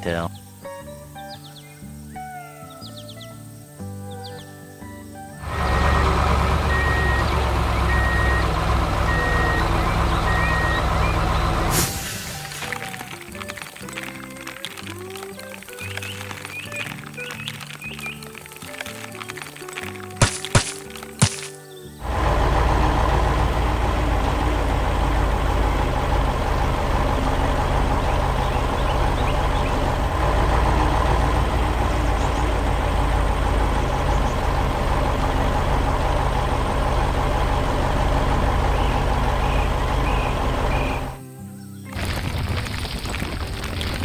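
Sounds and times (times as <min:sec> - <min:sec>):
heavy truck engine idling: 0:05.4 - 0:14.6, 0:21.9 - 0:41.2.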